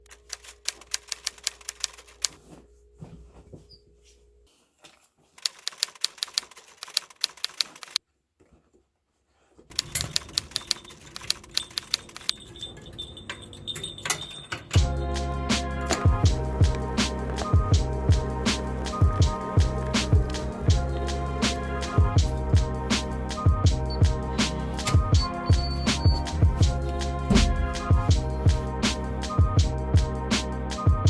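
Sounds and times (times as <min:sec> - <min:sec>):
keyboard typing: 0:00.1 - 0:02.4, 0:05.4 - 0:08.0, 0:09.7 - 0:14.2, 0:23.0 - 0:28.1.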